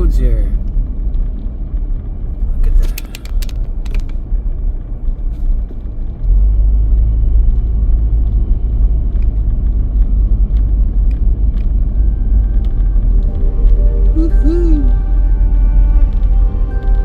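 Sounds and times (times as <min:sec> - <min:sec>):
car road and wind noise: 0:00.0 - 0:17.0.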